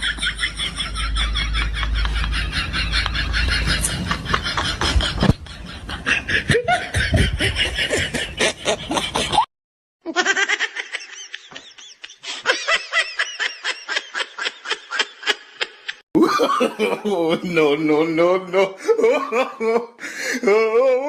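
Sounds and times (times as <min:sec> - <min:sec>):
person laughing: 0:00.0 - 0:09.5, 0:18.4 - 0:21.0.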